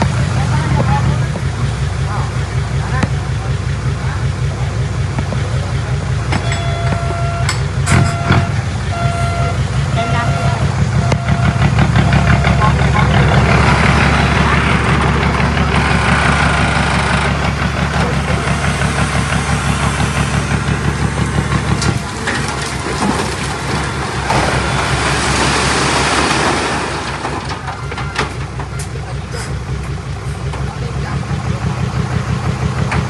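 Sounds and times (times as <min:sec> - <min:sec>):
heavy machinery diesel engine: 0:00.0 - 0:33.0
rushing clattering noise: 0:10.6 - 0:31.5.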